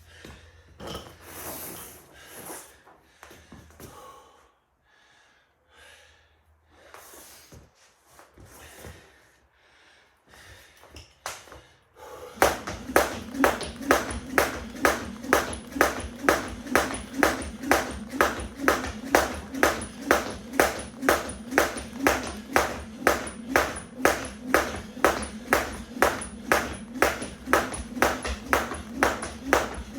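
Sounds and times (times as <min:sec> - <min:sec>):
jump rope slapping the floor: 0:12.3 - 0:29.9.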